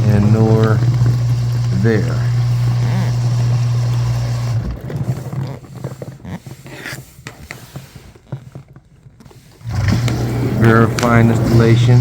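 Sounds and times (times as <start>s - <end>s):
rustling: 3.9s - 12.0s.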